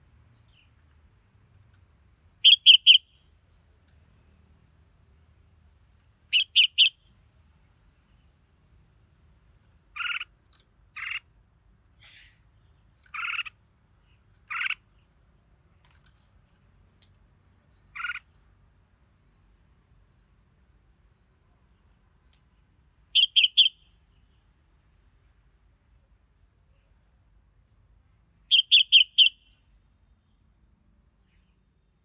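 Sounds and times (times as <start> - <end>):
bird calling short notes: 2.4 - 3.0, 6.3 - 6.9.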